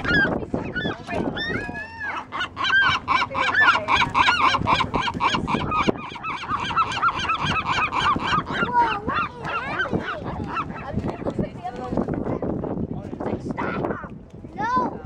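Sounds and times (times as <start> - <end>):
seagulls calling: 0.0 - 11.4.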